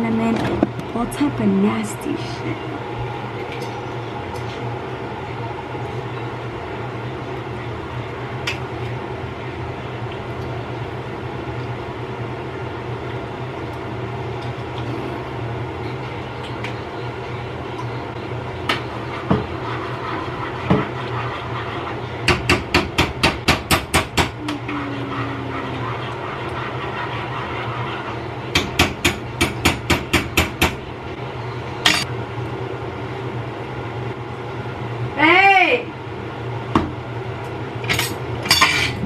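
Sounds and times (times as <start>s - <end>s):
low kitchen hum: 0.0s - 39.0s.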